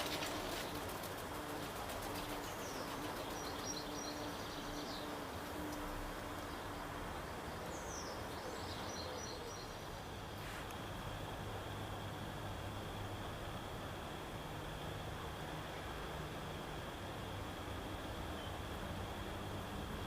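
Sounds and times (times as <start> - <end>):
background hiss: 0.0 - 20.0.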